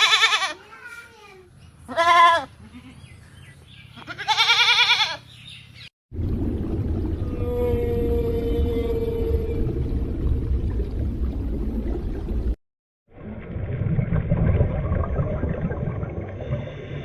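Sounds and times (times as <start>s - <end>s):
animal bleating: 0.0s - 0.6s, 1.9s - 3.1s, 3.9s - 5.3s
steady low rumble: 6.1s - 12.6s.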